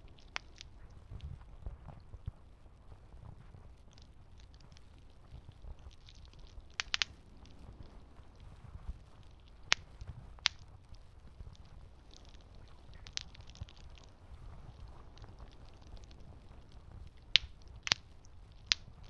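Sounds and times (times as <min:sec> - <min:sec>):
sharp pops of burning wood: 0:00.0 - 0:01.0, 0:03.8 - 0:08.6, 0:09.2 - 0:19.0
campfire crackling: 0:00.0 - 0:01.6, 0:02.5 - 0:19.0
low steady rumble: 0:00.0 - 0:19.0.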